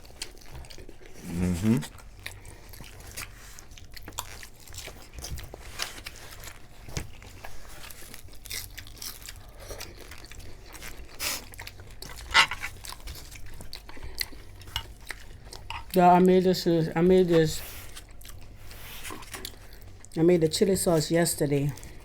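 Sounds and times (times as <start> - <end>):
crunching tortilla chips: 0.0 - 15.7.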